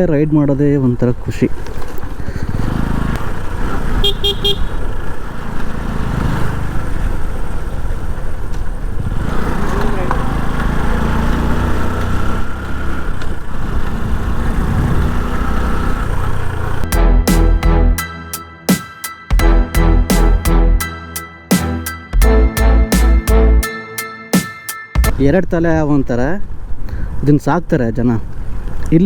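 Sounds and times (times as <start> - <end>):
horn beeps: 4.0 - 4.7, 16.9 - 25.2.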